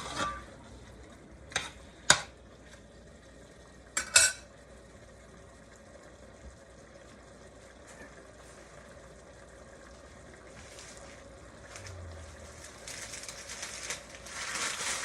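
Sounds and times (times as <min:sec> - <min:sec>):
chicken sizzling in pot: 0:00.0 - 0:15.0
metal utensil clinking on pot: 0:04.0 - 0:04.4.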